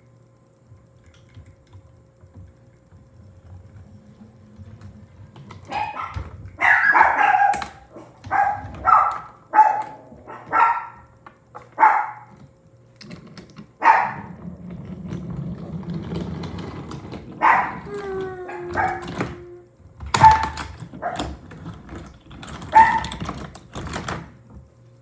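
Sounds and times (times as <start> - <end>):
faint low hum: 0.0 - 25.0
dog barking: 5.7 - 11.1, 11.7 - 12.3, 13.8 - 14.3, 17.4 - 17.9, 18.5 - 19.4, 20.2 - 21.3, 22.7 - 23.2.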